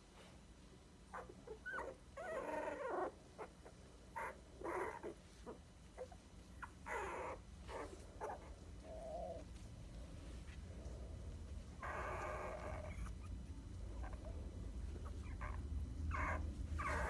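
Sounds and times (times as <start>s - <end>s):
puppies squeaking and whimpering: 11.8s - 13.4s, 15.0s - 17.0s.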